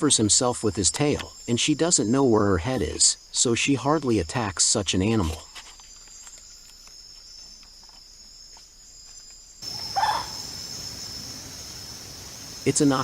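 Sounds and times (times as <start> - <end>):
night insects droning: 0.0 - 13.0
owl call: 9.6 - 13.0.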